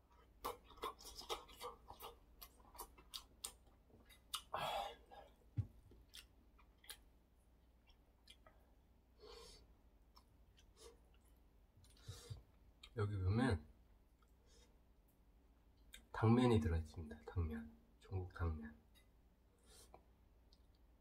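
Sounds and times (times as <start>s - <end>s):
close-up chewing: 0.0s - 4.6s, 5.2s - 8.7s.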